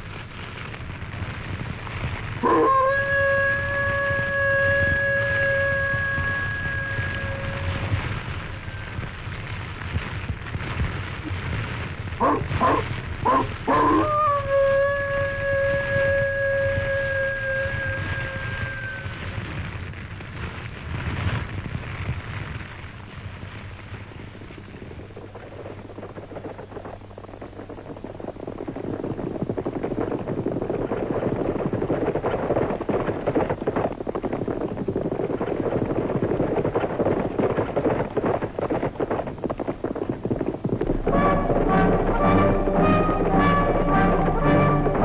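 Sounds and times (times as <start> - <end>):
brass music: 40.9 - 45.0.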